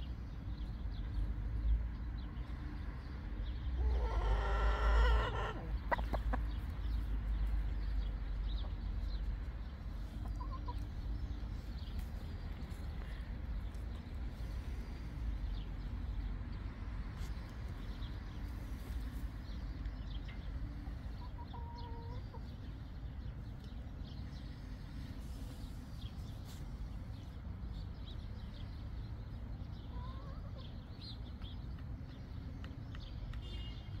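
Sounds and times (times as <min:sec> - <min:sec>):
hens clucking: 0:03.8 - 0:07.0, 0:10.1 - 0:11.0, 0:21.1 - 0:22.7.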